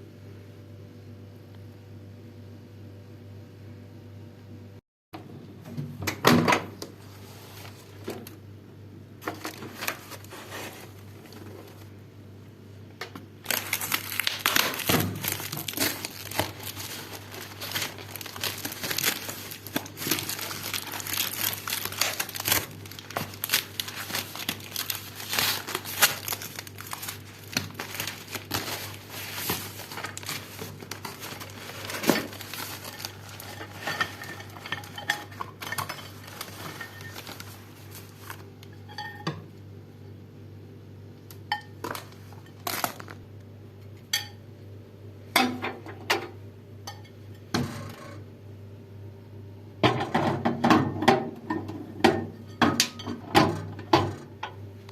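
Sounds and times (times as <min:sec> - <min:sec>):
low steady hum: 0:00.0 - 0:54.9
plastic wrapping crinkling: 0:09.2 - 0:11.9, 0:13.4 - 0:38.7, 0:41.8 - 0:43.3.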